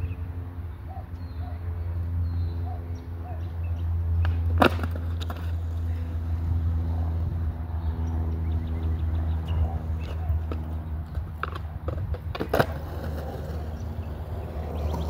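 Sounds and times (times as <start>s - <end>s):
skateboard wheels rolling on concrete: 3.1s - 15.0s
skateboard clack: 4.2s - 5.9s, 9.3s - 15.0s.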